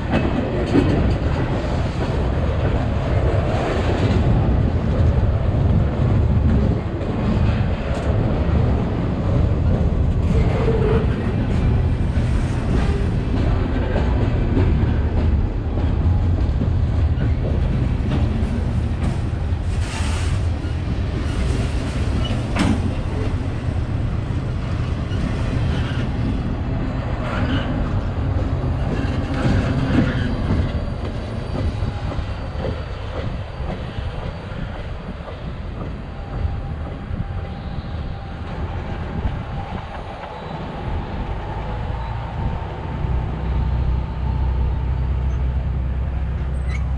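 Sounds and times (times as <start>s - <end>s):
freight train wheels rumbling: 0.0s - 46.9s.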